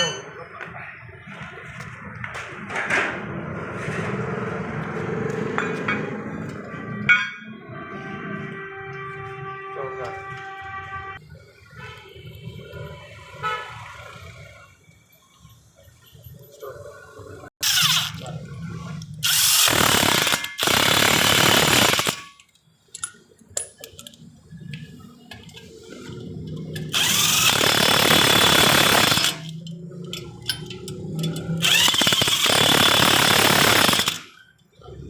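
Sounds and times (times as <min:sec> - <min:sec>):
power tool running in bursts: 0:19.2 - 0:22.2, 0:26.9 - 0:29.5, 0:31.6 - 0:34.3.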